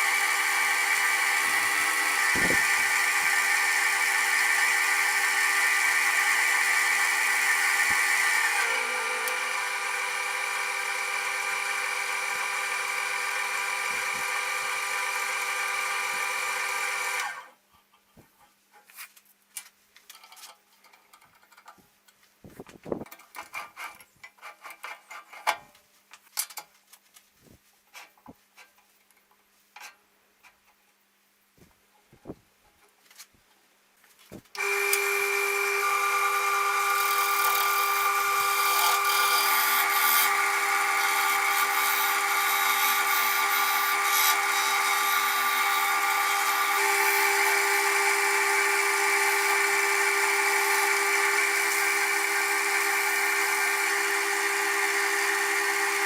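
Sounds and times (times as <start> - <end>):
wood lathe whining: 0.0 - 17.6, 34.5 - 56.0.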